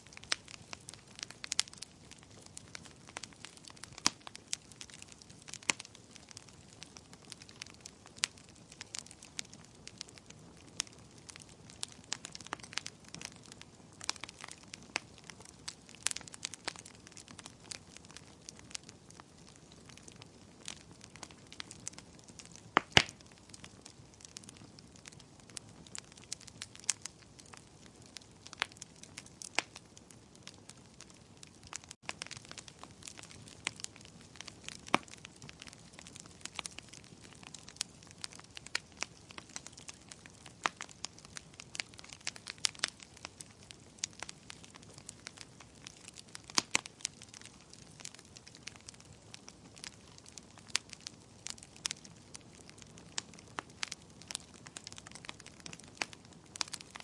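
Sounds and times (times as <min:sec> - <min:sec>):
faint steady hiss: 0:00.0 - 0:13.0
campfire crackling and popping: 0:00.0 - 0:57.0.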